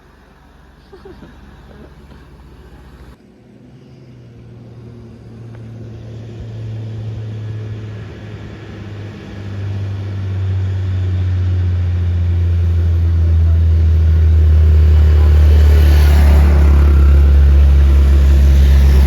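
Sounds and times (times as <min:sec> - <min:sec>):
truck diesel engine labouring: 0:00.0 - 0:03.2, 0:04.6 - 0:19.0.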